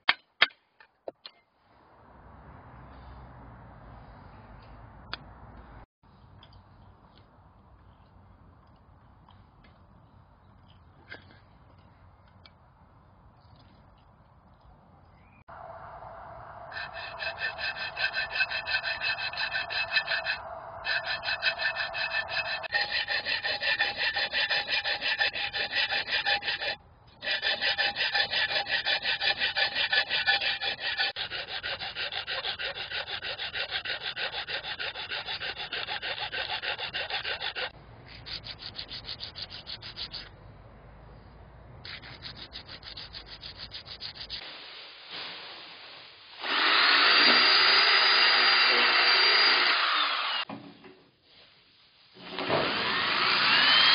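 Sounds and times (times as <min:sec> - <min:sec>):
hand tool rasping metal can: 0:16.7 - 0:40.3.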